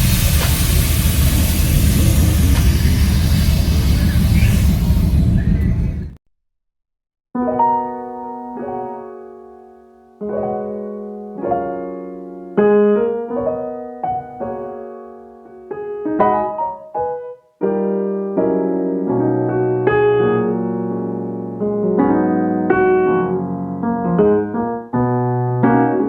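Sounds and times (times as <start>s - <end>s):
slow piano chords: 7.4s - 26.0s.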